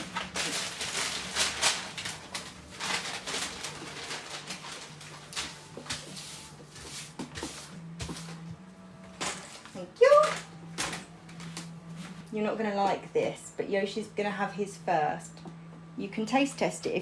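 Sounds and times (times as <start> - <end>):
rustling and scraping of handling: 0.0 - 13.0.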